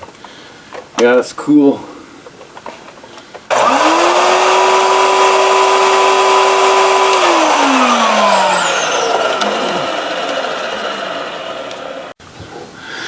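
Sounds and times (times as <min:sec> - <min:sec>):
vacuum cleaner motor whining: 0:03.5 - 0:12.2.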